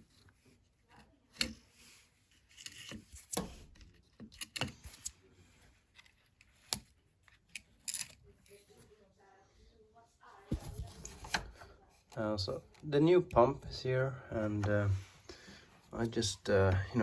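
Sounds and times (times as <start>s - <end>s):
plastic and metal parts clicking: 2.5s - 5.1s.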